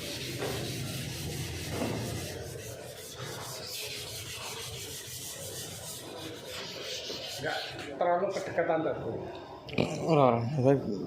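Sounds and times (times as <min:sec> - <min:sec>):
sandpaper rubbing body filler: 0:00.0 - 0:08.0.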